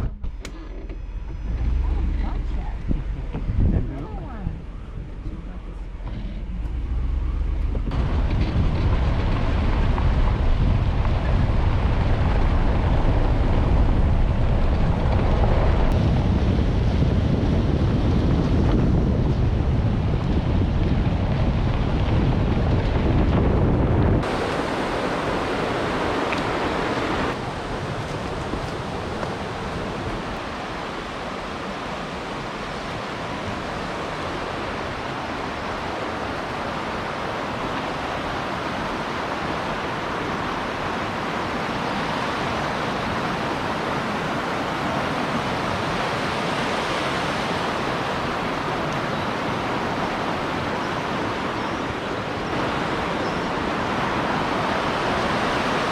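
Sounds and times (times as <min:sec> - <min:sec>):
rushing noise: 0:00.0 - 0:55.9.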